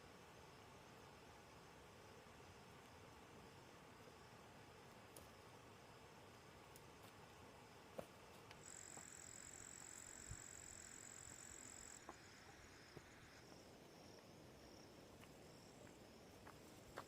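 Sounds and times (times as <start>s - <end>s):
insect high trill: 8.6s - 16.2s
insect pulsing chirp: 8.6s - 16.5s.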